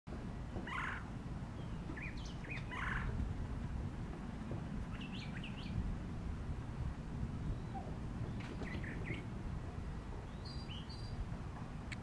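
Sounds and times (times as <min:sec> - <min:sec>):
steady low rumble: 0:00.1 - 0:12.0
harsh scratchy bird calls: 0:01.7 - 0:03.1.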